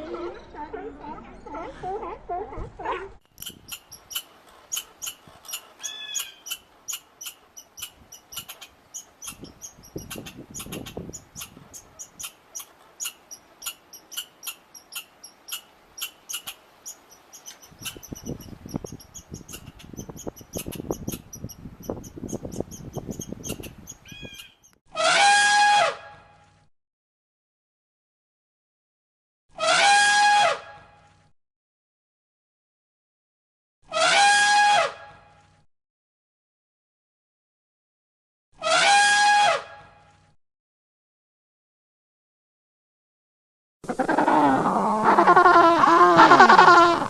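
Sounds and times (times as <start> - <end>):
small animal chirping: 3.3 - 24.7
loud animal call: 23.4 - 26.1, 29.6 - 30.6, 33.9 - 35.0, 38.6 - 39.7, 43.8 - 47.0.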